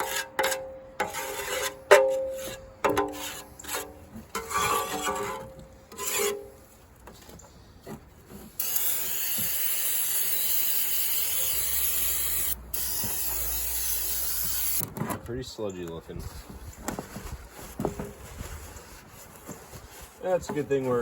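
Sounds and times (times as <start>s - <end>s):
scraper scraping sludge: 3.1s - 6.6s.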